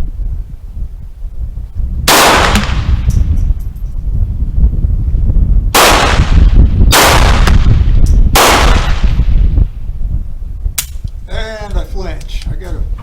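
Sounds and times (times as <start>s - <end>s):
steady low rumble: 0.0s - 13.0s
pistol shots: 2.1s - 3.0s, 5.8s - 7.7s, 8.3s - 9.2s.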